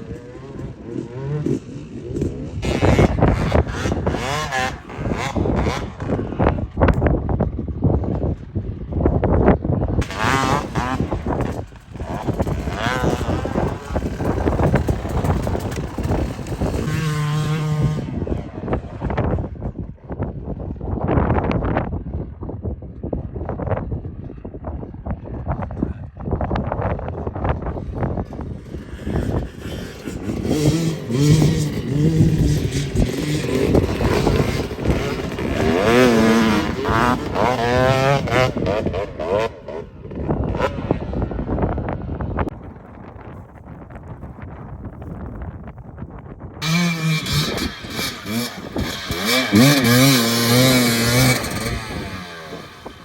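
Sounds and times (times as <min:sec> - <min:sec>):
dirt bike engine revving: 0:00.0 - 0:07.0, 0:10.0 - 0:19.5, 0:28.0 - 0:42.5, 0:46.6 - 0:53.0
wind noise on microphone: 0:00.0 - 0:53.0.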